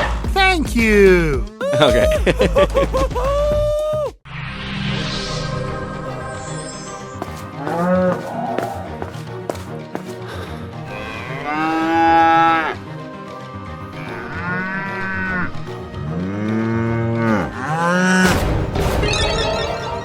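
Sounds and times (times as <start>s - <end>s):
cattle mooing: 10.8s - 12.8s, 13.9s - 18.2s.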